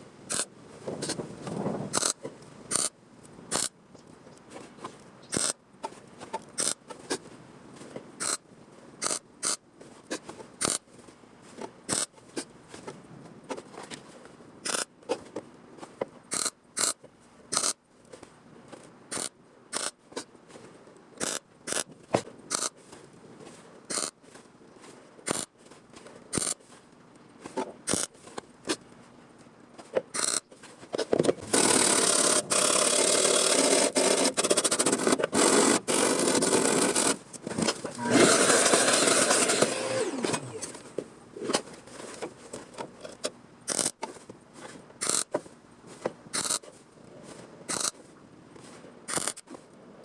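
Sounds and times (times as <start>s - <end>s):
power tool grinding metal: 31.4s - 37.2s, 38.0s - 40.7s
metal shears snipping: 36.8s - 40.8s
motor winding down whine: 38.0s - 40.8s.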